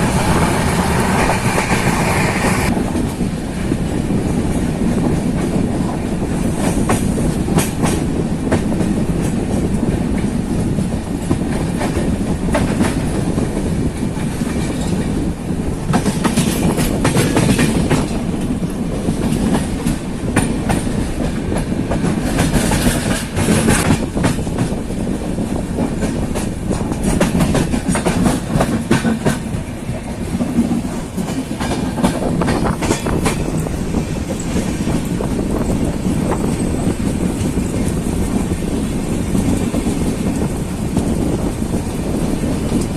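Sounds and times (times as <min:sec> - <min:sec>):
train rumble on track: 0:00.0 - 0:42.9
wheels clacking over rail joints: 0:04.6 - 0:42.9.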